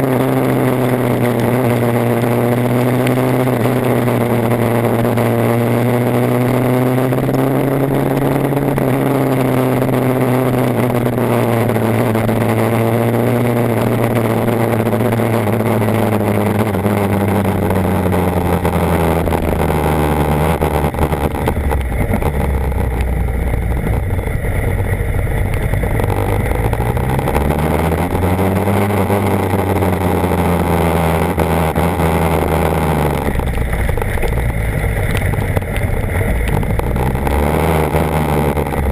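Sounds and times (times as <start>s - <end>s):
motorcycle engine running: 0.0s - 38.9s
steady rushing noise: 0.0s - 38.9s.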